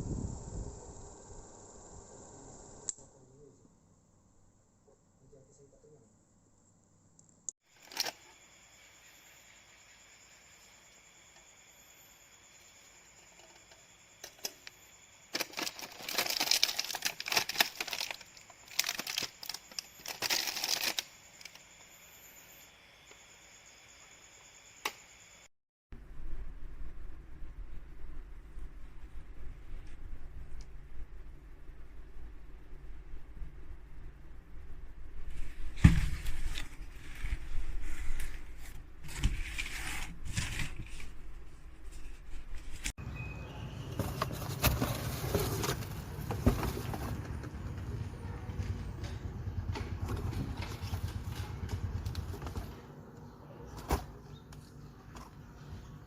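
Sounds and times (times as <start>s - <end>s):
scraping and rustling: 44.0s - 47.8s.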